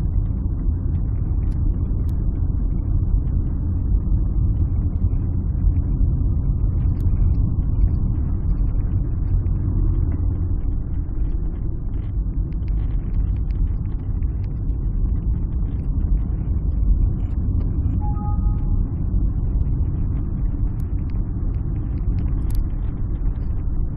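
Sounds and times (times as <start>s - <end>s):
faint tone: 18.0s - 19.2s.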